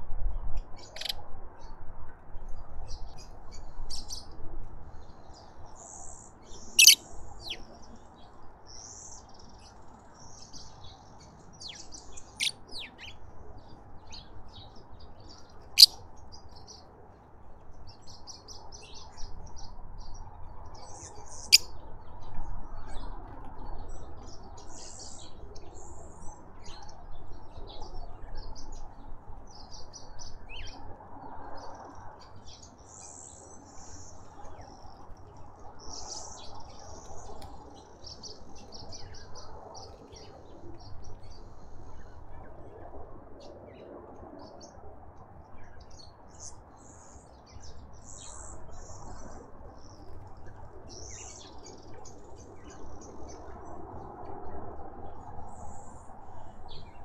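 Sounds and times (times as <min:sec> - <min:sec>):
small birds chirping: 0:00.8 - 0:01.1, 0:05.0 - 0:16.9, 0:20.8 - 0:21.7
sharp loud bird calls: 0:06.8 - 0:07.6.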